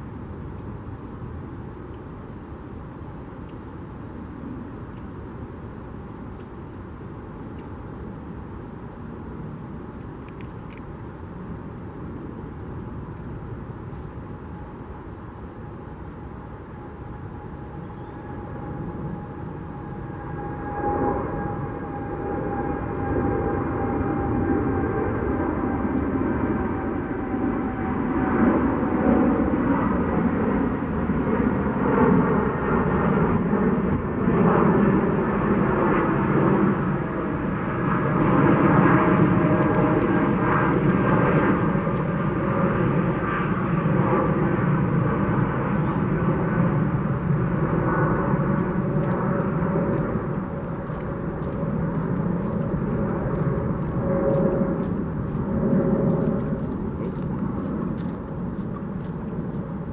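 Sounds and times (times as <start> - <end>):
distant engine rumble: 43.0 - 59.8.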